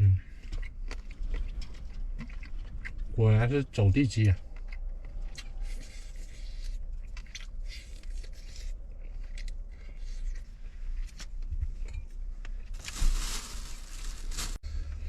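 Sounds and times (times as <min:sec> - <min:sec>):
person chewing and crunching: 0:00.2 - 0:13.8
rustling: 0:12.6 - 0:14.6.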